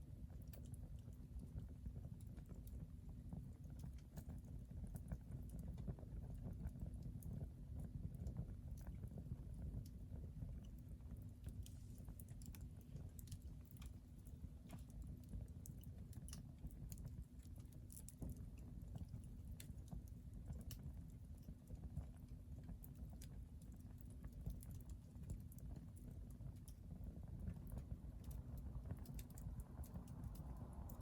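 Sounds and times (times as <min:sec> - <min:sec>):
fire crackling and popping: 0:00.0 - 0:31.0
low rumble of fire: 0:00.0 - 0:31.0.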